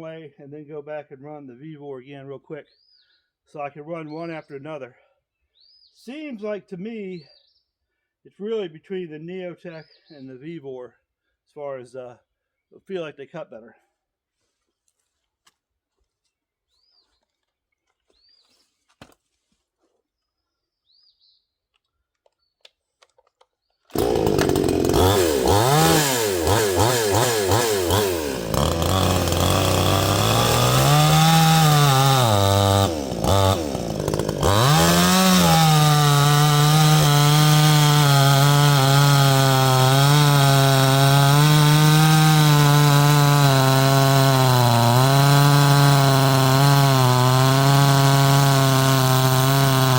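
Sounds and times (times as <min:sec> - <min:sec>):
chainsaw running at high revs: 0:23.9 - 0:49.9.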